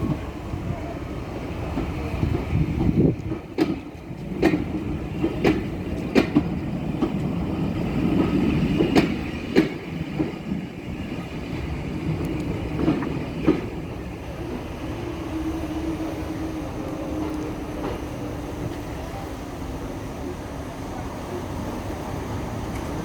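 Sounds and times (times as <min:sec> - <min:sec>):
train rumbling: 0:00.0 - 0:23.0
wheels clicking over rail joints: 0:01.6 - 0:15.0.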